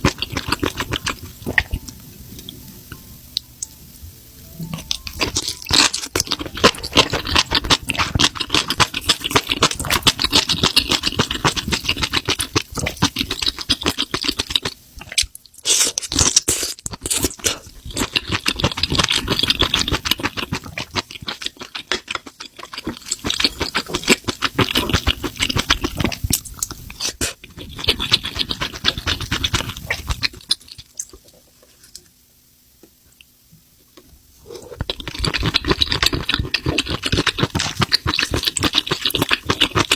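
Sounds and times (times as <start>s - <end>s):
close chewing mouth clicks: 5.2s - 31.3s, 34.7s - 39.9s.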